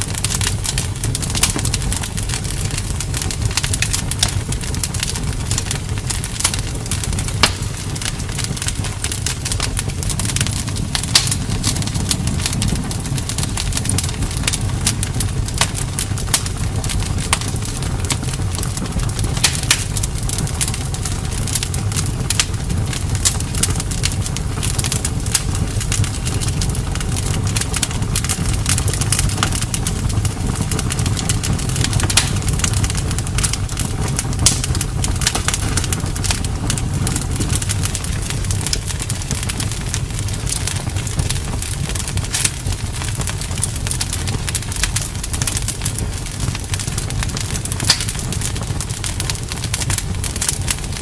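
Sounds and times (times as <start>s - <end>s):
campfire crackling and popping: 0.0s - 51.0s
low rumble: 3.2s - 44.0s.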